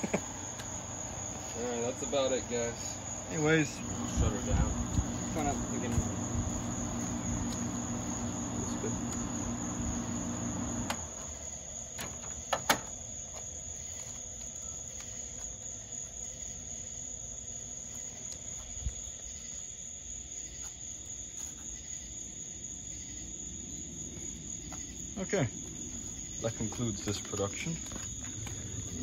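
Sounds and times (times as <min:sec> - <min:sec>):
air conditioner humming: 0:00.0 - 0:12.4
crickets chirring: 0:00.0 - 0:29.0.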